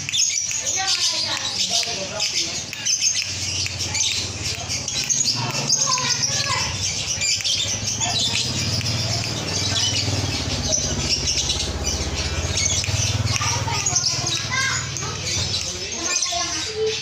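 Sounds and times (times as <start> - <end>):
birds chirping and squeaking: 0.0 - 17.0.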